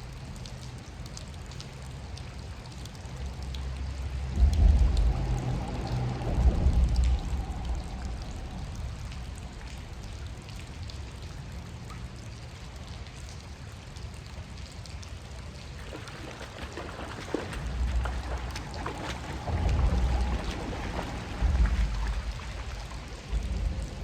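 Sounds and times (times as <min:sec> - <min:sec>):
creek water running: 0:00.0 - 0:24.0
raindrop ticks: 0:00.0 - 0:24.0
steady rain: 0:00.0 - 0:24.0
low rumble on microphone: 0:03.2 - 0:12.1, 0:15.7 - 0:24.0.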